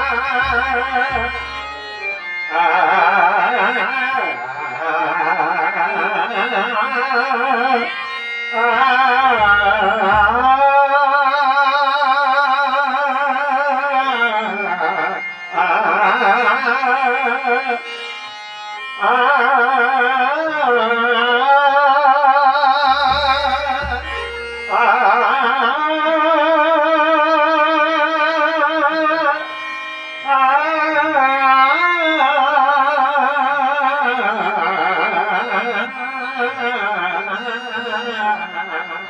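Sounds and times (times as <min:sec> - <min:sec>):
wordless devotional melody: 0:00.0 - 0:39.0
deep drum strokes: 0:23.0 - 0:24.8.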